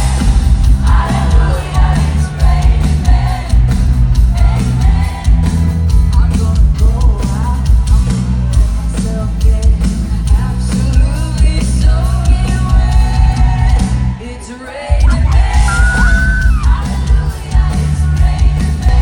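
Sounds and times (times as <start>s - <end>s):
person singing: 14.3s - 17.4s
crowd yelling: 14.9s - 17.0s
heavy bass beat: 14.9s - 17.4s.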